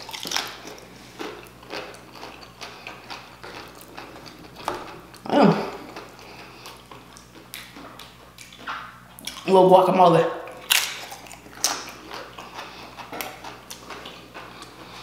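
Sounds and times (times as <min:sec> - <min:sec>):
chips being crunched and chewed: 0:00.0 - 0:04.6.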